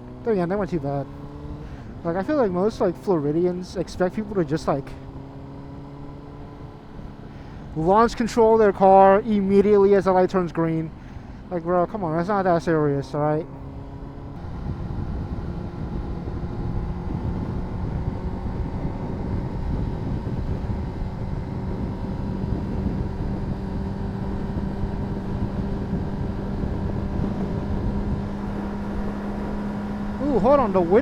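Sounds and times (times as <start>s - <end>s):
motorcycle engine running: 3.9s - 7.7s, 13.5s - 31.0s.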